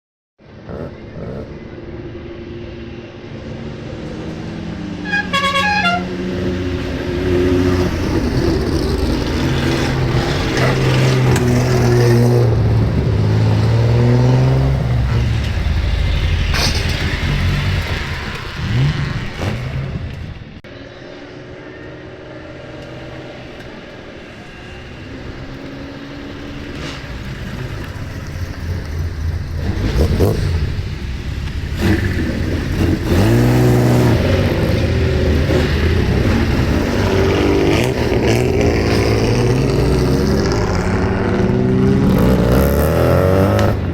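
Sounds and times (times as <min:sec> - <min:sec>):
musical car horn: 0:05.0 - 0:06.4
loud car exhausts revving: 0:31.7 - 0:43.9.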